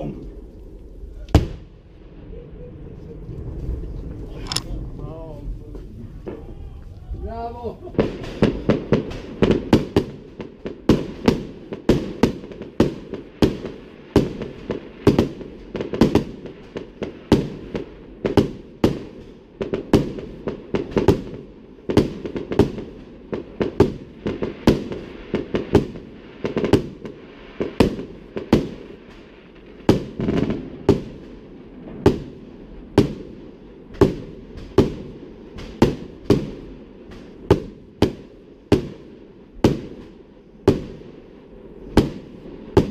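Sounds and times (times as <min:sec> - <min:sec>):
rumbling echo: 0:00.0 - 0:11.8
fireworks banging: 0:00.0 - 0:42.9.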